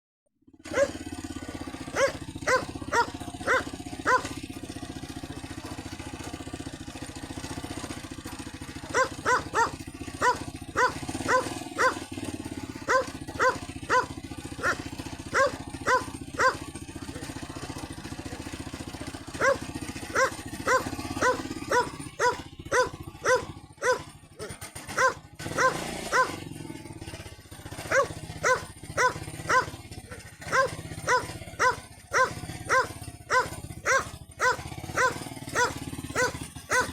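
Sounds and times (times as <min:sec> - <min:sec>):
tractor engine running: 0:00.5 - 0:36.9
dog barking loudly: 0:00.7 - 0:04.6, 0:08.8 - 0:17.5, 0:19.2 - 0:26.5, 0:27.8 - 0:36.9.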